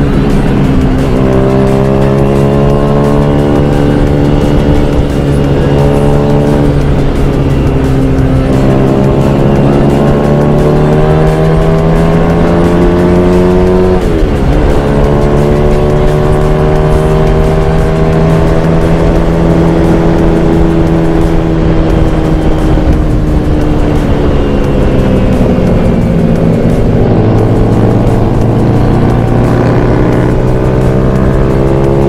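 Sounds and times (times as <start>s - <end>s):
wind noise: 18.5s - 31.6s.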